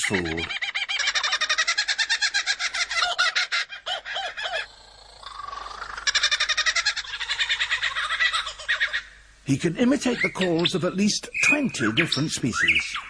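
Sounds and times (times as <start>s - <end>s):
bird laughing chatter: 0.0s - 9.2s.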